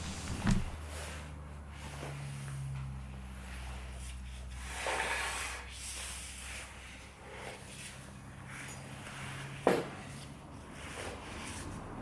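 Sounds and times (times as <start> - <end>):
rubbing scrape: 0.0 - 0.9.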